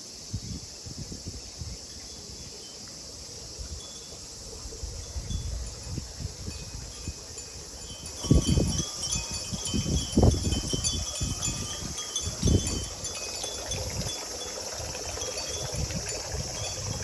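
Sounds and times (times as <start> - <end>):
cicadas droning: 0.0 - 17.0
wind buffeting microphone: 0.3 - 2.4, 3.5 - 17.0
wind chimes tinkling: 5.1 - 17.0.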